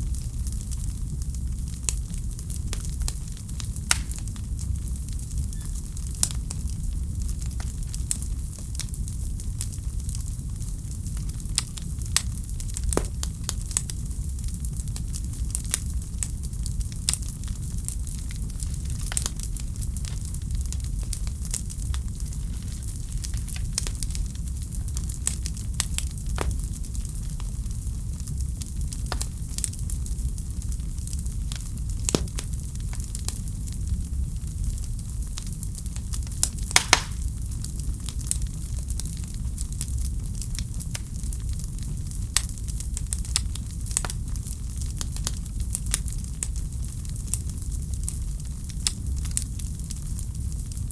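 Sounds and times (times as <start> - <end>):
wood fire rumble and hiss: 0.0 - 50.9
fire pops and snaps: 2.7 - 5.1, 11.0 - 15.9, 17.9 - 33.7, 36.0 - 38.4.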